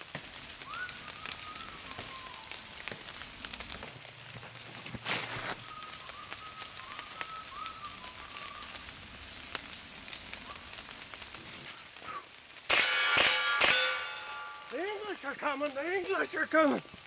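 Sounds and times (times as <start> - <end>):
rain pattering on dry leaves: 0.0 - 17.0
boot crunching leaf litter: 3.9 - 5.7.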